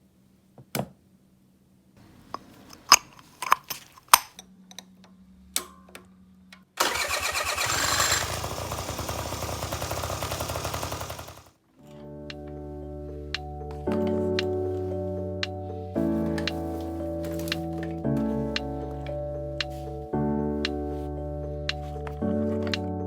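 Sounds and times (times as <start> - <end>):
scooter engine starting and idling: 6.8 - 11.5.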